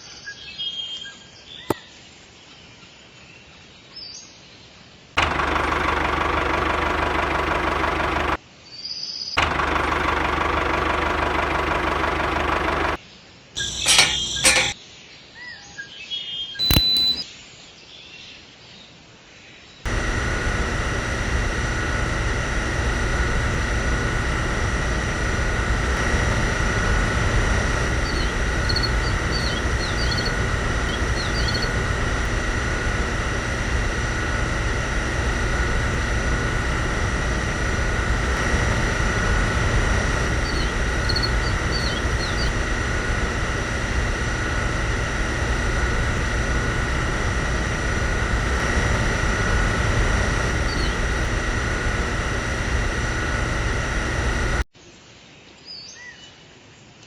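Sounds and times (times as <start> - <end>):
small motor whining: 5.2 - 8.4, 9.4 - 13.0, 13.6 - 14.8, 16.6 - 17.2, 19.9 - 54.6.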